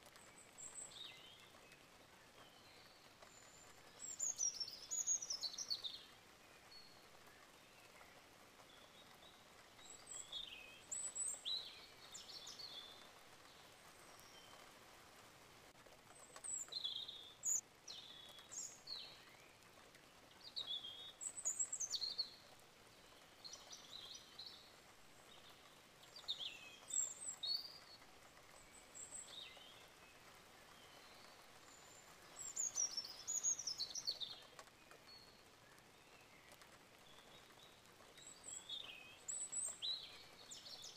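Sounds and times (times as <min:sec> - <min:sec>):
faint steady hiss: 0:00.0 - 0:40.9
birds chirping: 0:20.4 - 0:40.9.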